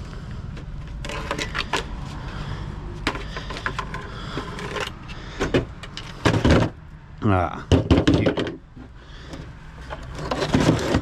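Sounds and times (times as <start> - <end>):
clicks and rattling of hard parts: 0.5 - 2.0, 3.0 - 6.8, 7.7 - 8.7, 9.3 - 11.0.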